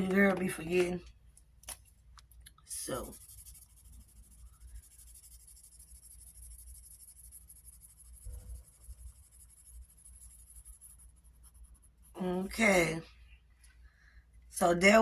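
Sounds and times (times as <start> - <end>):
pen scratching on paper: 2.7 - 13.0.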